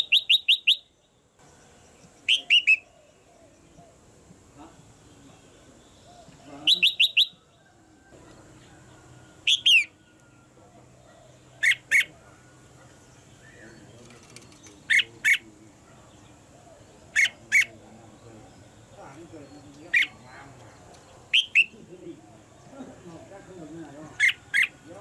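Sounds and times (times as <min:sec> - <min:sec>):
bird calling sharp notes: 0:00.0 - 0:01.0, 0:02.2 - 0:04.1, 0:04.8 - 0:07.6, 0:09.3 - 0:10.6, 0:11.2 - 0:12.5, 0:13.3 - 0:17.8, 0:18.7 - 0:22.5, 0:24.1 - 0:24.9.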